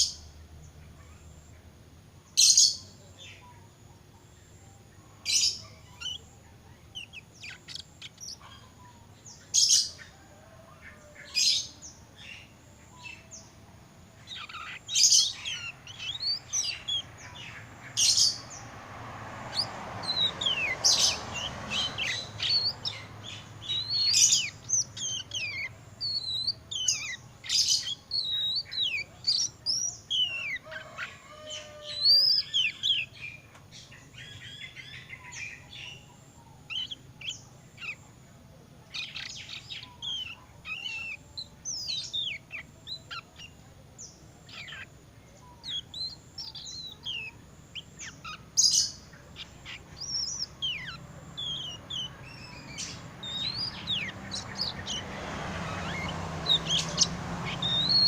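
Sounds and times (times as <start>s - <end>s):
bird whistles and chirps: 55.6s - 58.0s.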